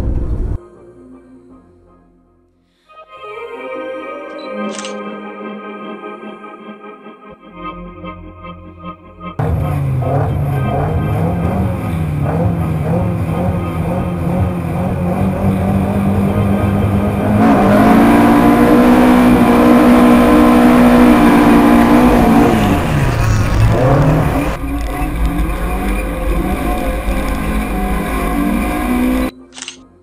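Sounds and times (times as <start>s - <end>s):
race car engine running hard: 9.4s - 29.3s.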